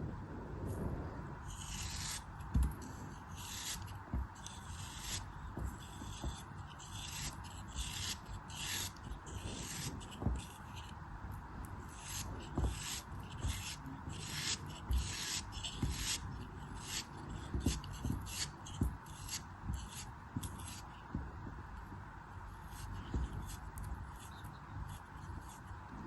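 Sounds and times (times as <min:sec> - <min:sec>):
blade scraping craft material: 0:01.4 - 0:21.0.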